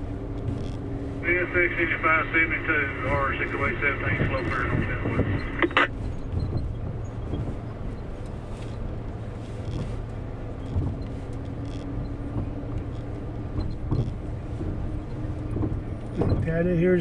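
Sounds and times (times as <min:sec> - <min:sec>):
faint steady hum: 0:00.2 - 0:05.9.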